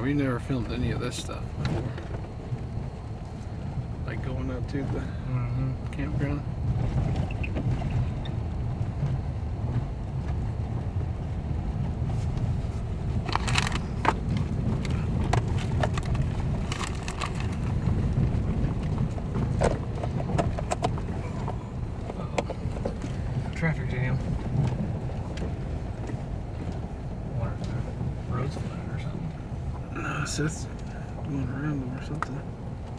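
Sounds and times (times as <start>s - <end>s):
engine and tyre rumble: 0.0s - 32.9s
short clicks and rattles: 13.2s - 17.8s.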